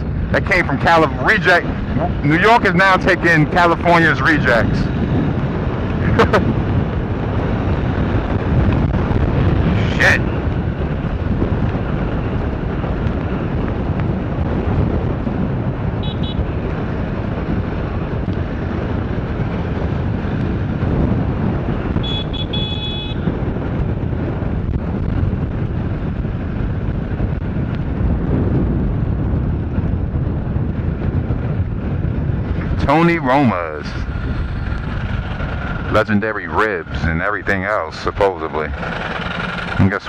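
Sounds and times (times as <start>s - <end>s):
motorcycle engine: 0.0s - 40.0s
road noise: 0.0s - 40.0s
wind rushing: 0.0s - 40.0s.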